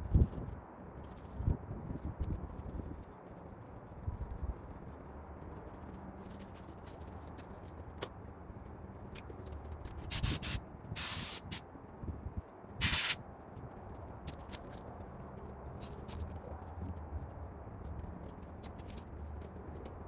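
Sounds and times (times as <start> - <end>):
pressurised spray hissing: 10.1 - 11.6, 12.8 - 13.2.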